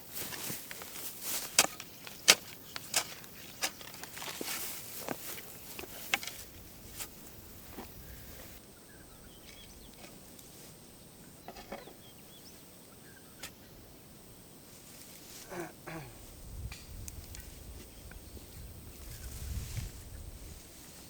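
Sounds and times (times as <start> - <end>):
birds chirping faintly: 0.4 - 14.2.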